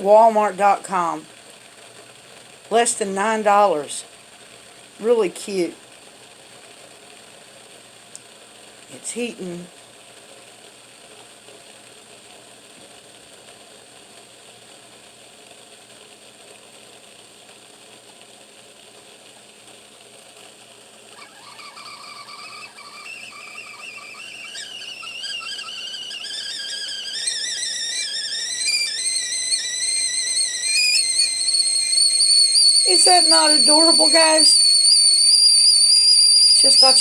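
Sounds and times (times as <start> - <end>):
water hissing in kettle: 0.0 - 37.0
kettle whistling: 21.1 - 37.0.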